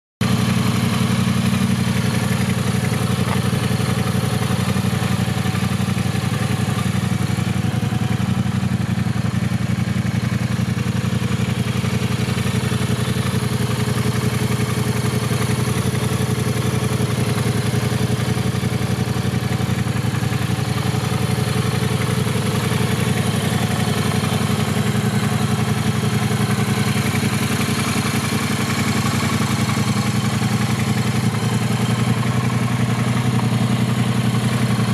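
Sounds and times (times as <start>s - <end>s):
motorcycle engine idling: 0.2s - 34.9s.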